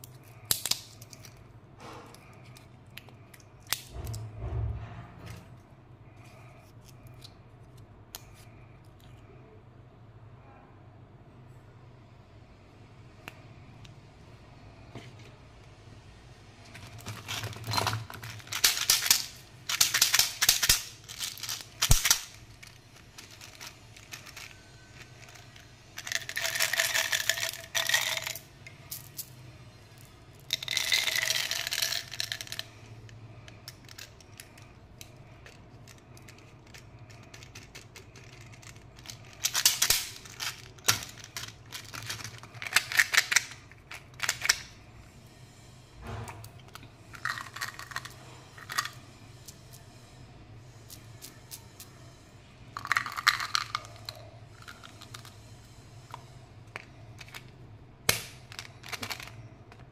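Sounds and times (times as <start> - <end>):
candy packaging crinkling: 16.7 - 28.4, 33.5 - 44.7, 58.3 - 59.9.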